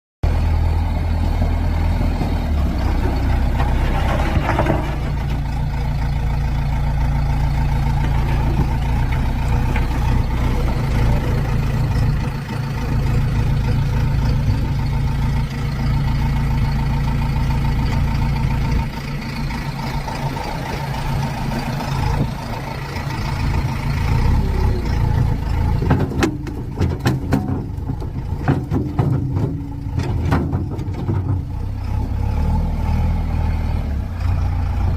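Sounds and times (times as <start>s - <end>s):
sharp knocks and clanks: 2.1s - 5.6s, 7.9s - 11.0s, 25.2s - 31.6s.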